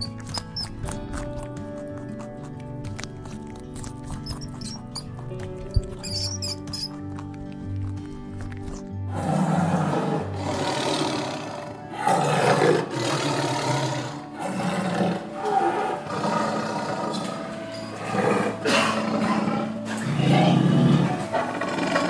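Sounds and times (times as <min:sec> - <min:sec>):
background music: 0:00.0 - 0:22.0
tiger roaring and growling: 0:09.0 - 0:22.0.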